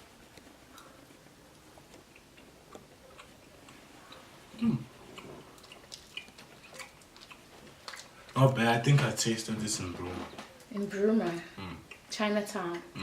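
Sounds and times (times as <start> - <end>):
person chewing snack: 0.0 - 8.4, 11.6 - 12.1.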